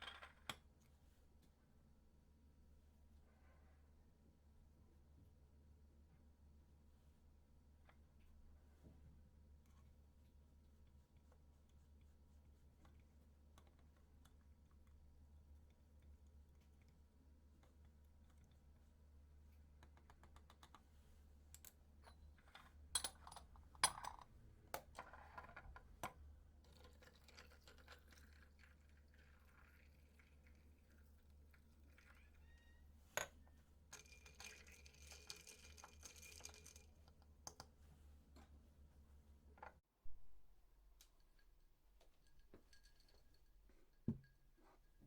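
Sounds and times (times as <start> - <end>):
small objects clicking and tapping: 33.2 - 37.7.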